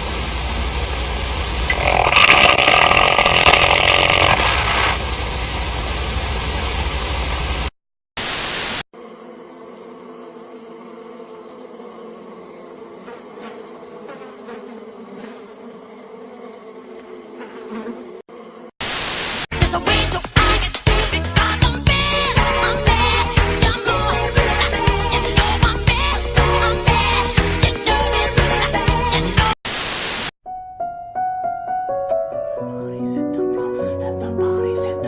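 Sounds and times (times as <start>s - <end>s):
loud hiss-like noise: 0.0s - 8.8s, 18.8s - 19.5s, 29.7s - 30.3s
flies buzzing: 1.5s - 5.1s, 8.9s - 29.6s.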